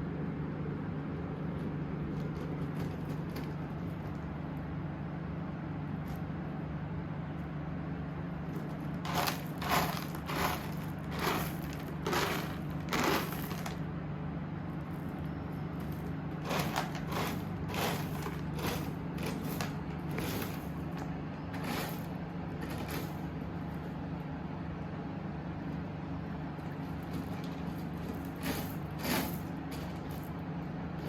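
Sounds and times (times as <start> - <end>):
cat scratching in litter: 1.5 - 4.3, 8.4 - 13.8, 14.7 - 24.0, 26.6 - 31.0.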